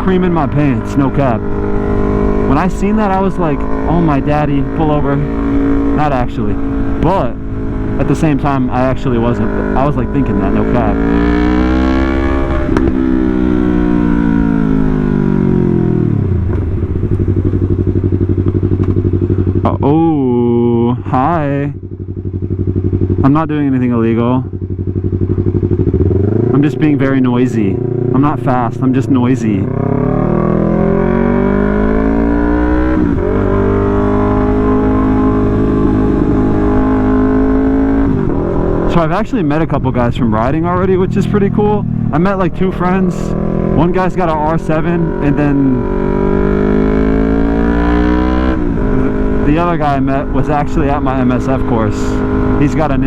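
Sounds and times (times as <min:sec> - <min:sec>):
motorcycle engine idling: 0:00.0 - 0:11.2, 0:12.7 - 0:29.9.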